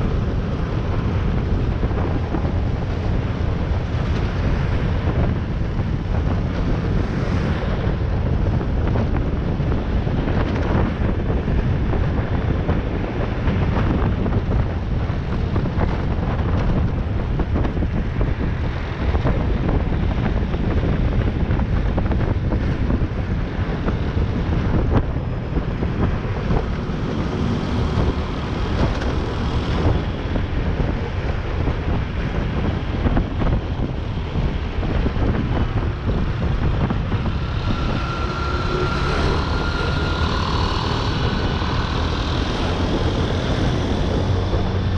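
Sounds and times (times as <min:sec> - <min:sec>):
traffic rumble: 0:00.0 - 0:44.9
wind rushing over microphone: 0:00.0 - 0:44.9
motorcycle engine: 0:33.1 - 0:44.9
faint high whine: 0:36.4 - 0:44.4.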